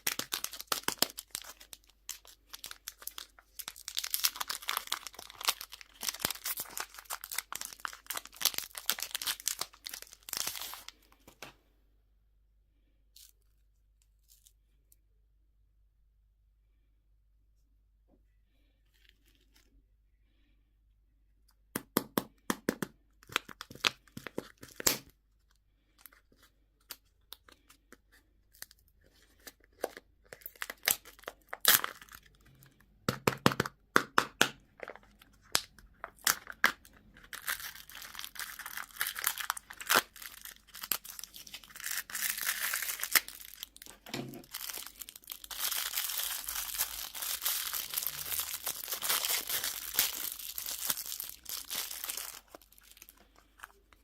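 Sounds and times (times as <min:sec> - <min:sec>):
plastic wrapping crinkling: 0:00.0 - 0:11.4, 0:34.8 - 0:54.0.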